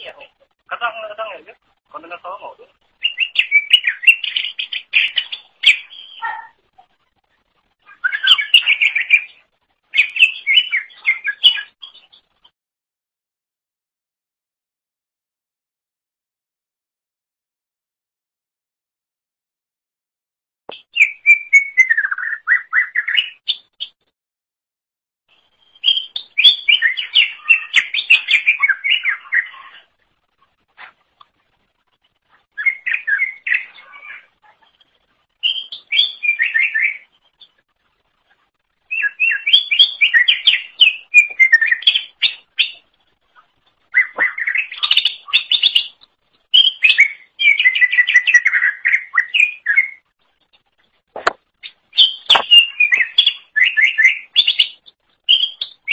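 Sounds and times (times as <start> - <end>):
bird singing warbled whistled notes: 3.0 - 6.5, 7.8 - 12.3, 20.8 - 24.0, 25.4 - 29.8, 32.5 - 37.6, 38.8 - 42.9, 43.9 - 50.1, 51.6 - 55.9.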